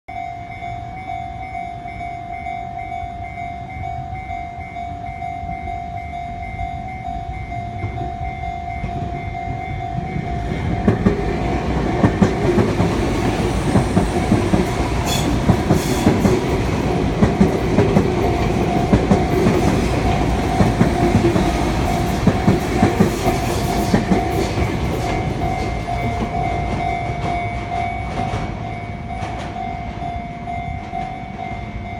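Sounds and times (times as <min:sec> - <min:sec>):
train wheels clacking over rail joints: 0:10.0 - 0:30.0
level crossing bell ringing: 0:16.4 - 0:31.9.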